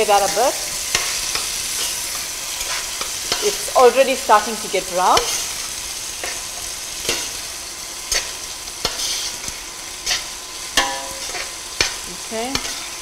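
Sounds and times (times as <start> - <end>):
food sizzling in hot oil: 0.0 - 13.0
metal ladle knocking against pot: 10.8 - 11.2.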